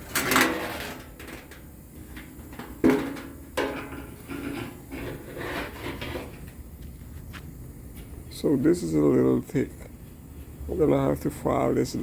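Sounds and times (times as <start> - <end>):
rubbing and scraping: 4.3 - 6.5.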